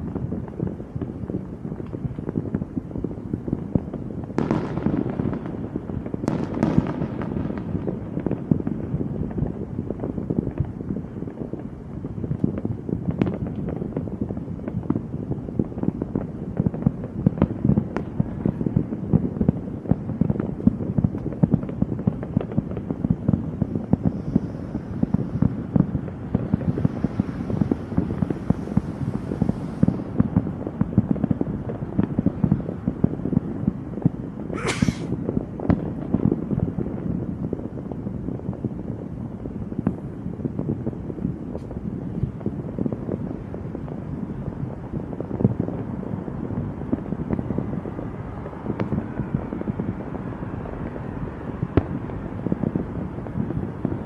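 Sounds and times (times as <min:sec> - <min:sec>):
fireworks crackling bangs: 0:00.0 - 0:54.0
sharp hiss: 0:34.6 - 0:35.2.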